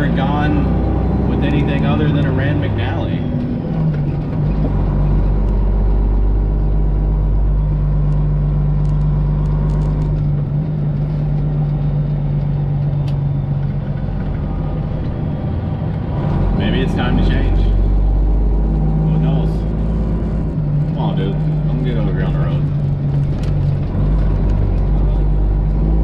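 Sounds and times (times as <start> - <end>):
truck diesel exhaust drone: 0.0 - 26.0.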